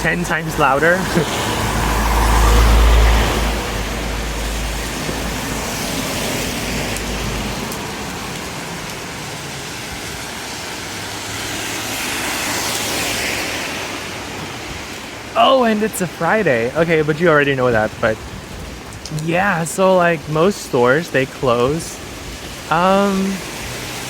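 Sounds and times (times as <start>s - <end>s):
vehicle passing: 0.0s - 8.4s, 22.8s - 24.0s
rain and wet road hiss: 0.0s - 24.0s.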